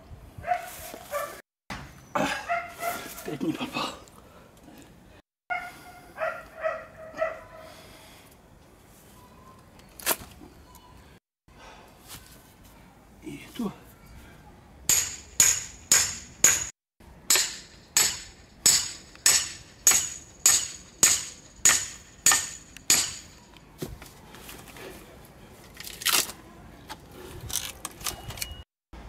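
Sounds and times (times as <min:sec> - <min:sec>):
tool strikes on log ringing: 0:14.9 - 0:16.7, 0:17.3 - 0:23.5.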